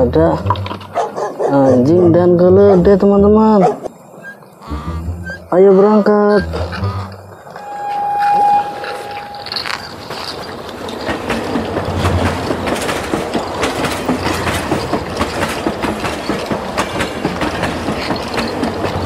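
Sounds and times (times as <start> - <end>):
train wheels clicking over rail joints: 8.9 - 19.0.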